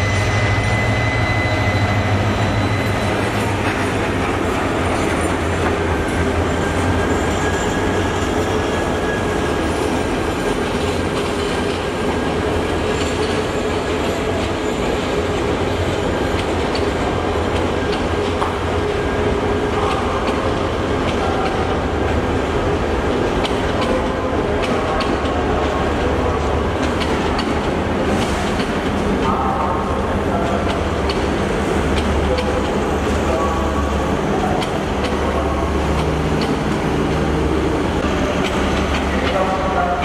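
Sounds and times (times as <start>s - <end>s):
train wheels rumbling on track: 0.0s - 40.0s
clacks over rail joints: 23.1s - 29.2s, 34.4s - 37.4s, 38.0s - 40.0s.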